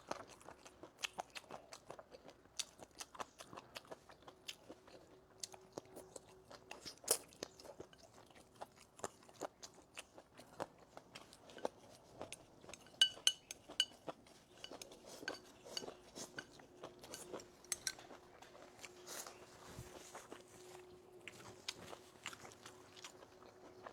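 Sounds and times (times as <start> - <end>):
chewing and crunching: 0.0 - 23.9
chopsticks clinking on bowl rim: 12.6 - 18.2
chopsticks clicking on bowl: 12.8 - 13.9, 17.1 - 18.1.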